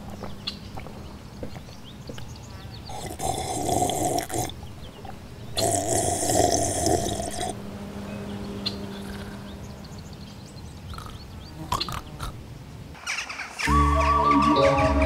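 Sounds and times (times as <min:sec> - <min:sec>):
man snoring: 0:02.9 - 0:04.5, 0:05.6 - 0:07.6.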